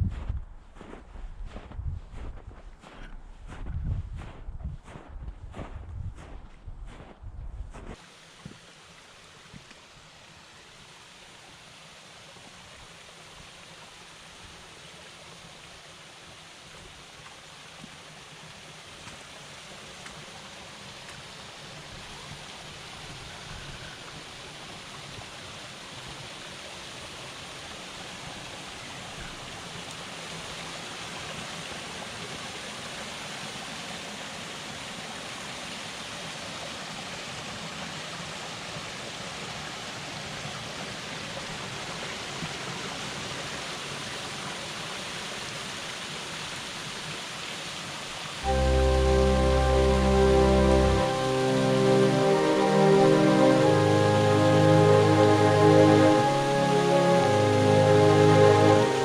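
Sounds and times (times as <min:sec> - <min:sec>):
waterfall rushing: 0:48.4 - 0:59.0.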